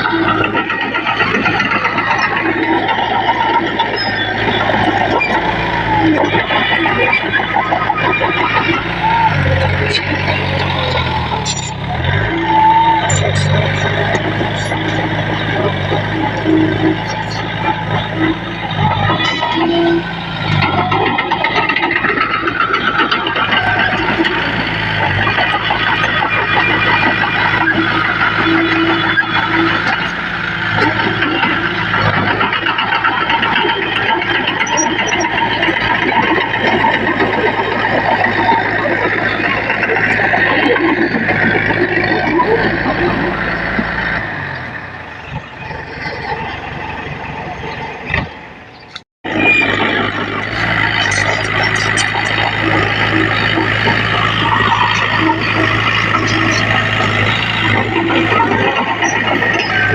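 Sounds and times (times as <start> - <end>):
heavy machinery diesel engine: 0.0 - 59.9
mechanical clatter: 48.1 - 59.9.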